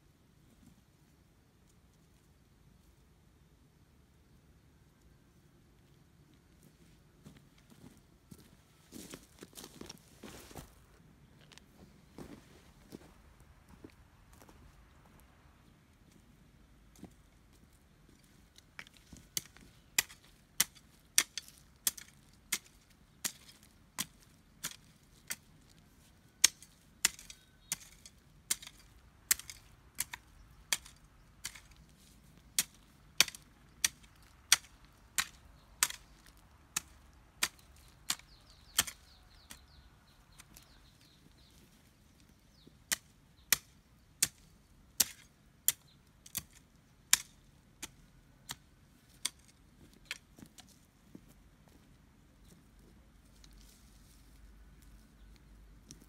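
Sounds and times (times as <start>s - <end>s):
hand tool chopping strokes: 26.4s - 39.8s.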